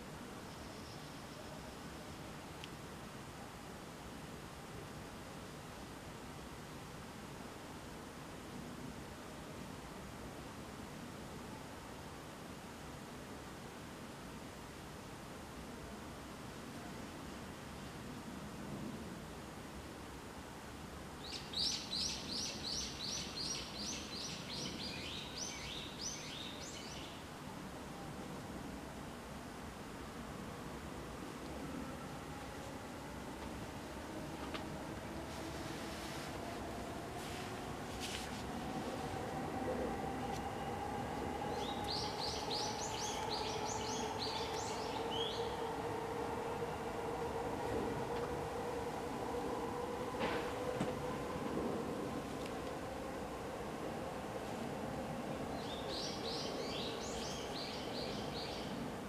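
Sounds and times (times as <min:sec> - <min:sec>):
faint steady hiss: 0:00.0 - 0:59.0
bird chirping: 0:41.5 - 0:45.7.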